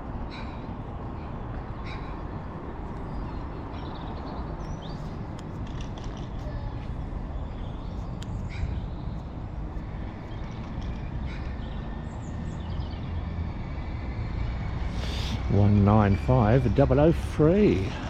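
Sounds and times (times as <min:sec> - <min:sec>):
train rumbling by: 0:09.4 - 0:18.0.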